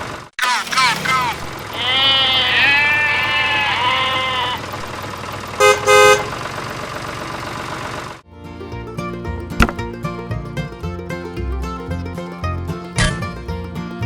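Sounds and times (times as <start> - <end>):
bleating animal-like call: 0.4 - 4.9.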